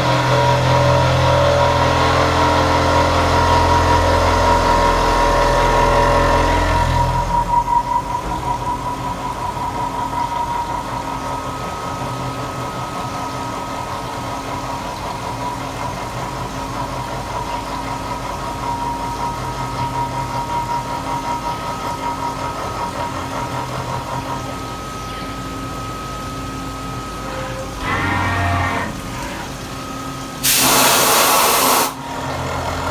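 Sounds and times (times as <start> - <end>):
milling machine cutting steel: 27.0 - 32.8.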